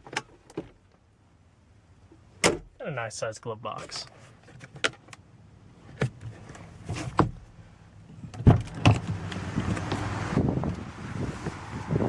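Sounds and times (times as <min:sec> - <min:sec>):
wind noise rushing: 0:09.4 - 0:12.0.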